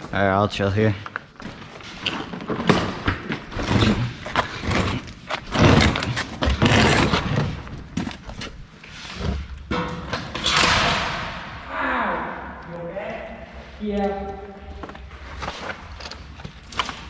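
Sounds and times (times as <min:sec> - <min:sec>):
rustling noise: 0:13.6 - 0:17.0.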